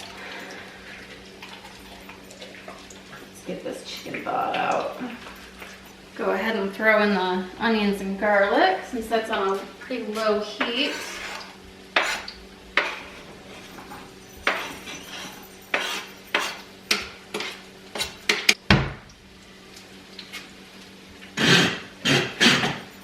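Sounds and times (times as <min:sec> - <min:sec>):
utensils clanking against pots: 0:10.1 - 0:18.6.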